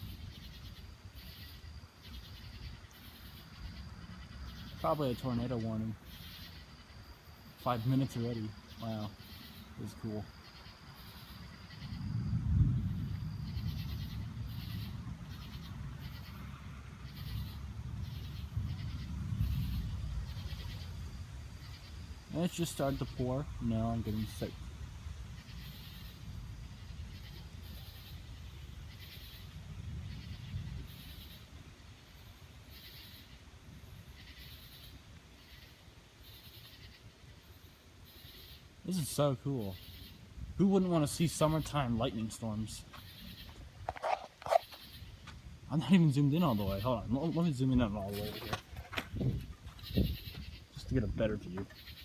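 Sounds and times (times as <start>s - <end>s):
insects chirping: 0.0s - 52.0s
thunder rumbling: 11.4s - 31.3s
deeper rumble: 11.9s - 21.2s.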